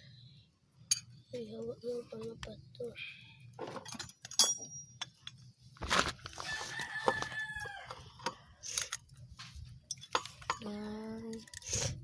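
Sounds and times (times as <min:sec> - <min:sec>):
sharp metallic clink: 0:04.0 - 0:05.1
rooster crowing: 0:06.4 - 0:08.5.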